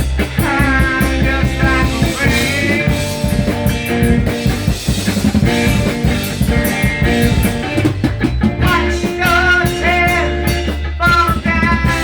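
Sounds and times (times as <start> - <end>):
rock music with guitar and drums: 0.0 - 12.0
person singing: 0.4 - 3.3, 8.6 - 12.0.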